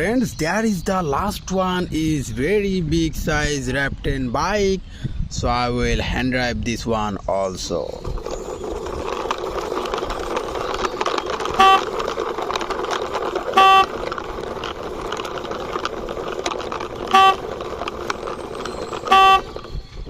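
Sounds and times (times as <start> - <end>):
toy motorbike rolling: 7.4 - 20.0
vehicle horn toots: 11.5 - 12.1, 13.5 - 14.0, 17.0 - 17.7, 19.0 - 19.6.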